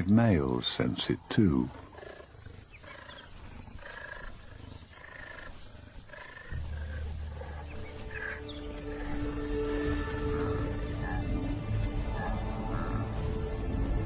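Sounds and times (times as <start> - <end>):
low animal rumble: 1.5 - 14.0.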